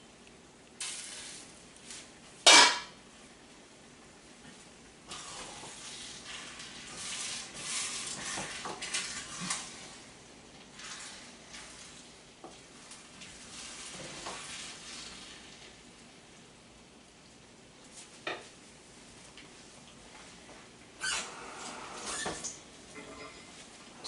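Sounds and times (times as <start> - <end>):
food sizzling: 0.8 - 2.7, 10.7 - 15.8.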